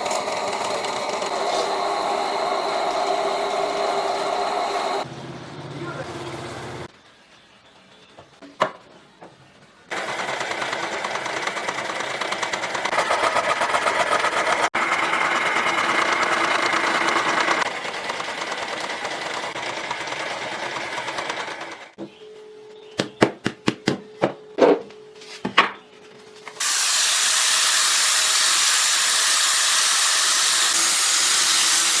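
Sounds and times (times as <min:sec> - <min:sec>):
electric power tool buzzing: 0:00.0 - 0:05.1, 0:09.9 - 0:22.0, 0:26.6 - 0:32.0.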